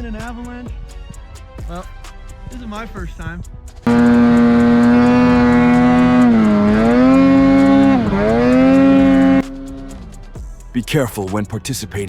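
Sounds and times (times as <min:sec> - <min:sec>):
loud horn blast: 0:03.9 - 0:10.0.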